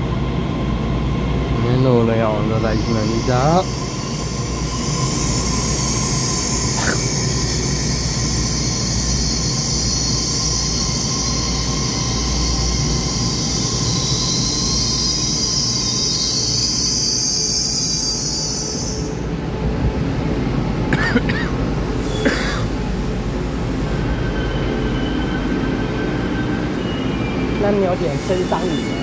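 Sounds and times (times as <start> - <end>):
high-pitched squeal: 2.5 - 19.3, 24.0 - 29.0.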